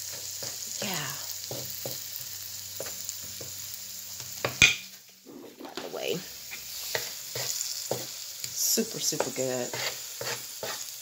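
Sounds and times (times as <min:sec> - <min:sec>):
food sizzling on griddle: 0:00.0 - 0:11.0
utensil scraping griddle: 0:06.5 - 0:08.2, 0:09.1 - 0:11.0.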